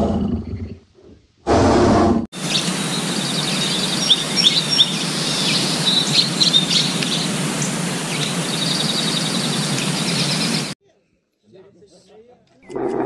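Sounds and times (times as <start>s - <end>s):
steady outdoor rush: 2.3s - 10.8s
small songbirds chirping: 2.4s - 10.8s.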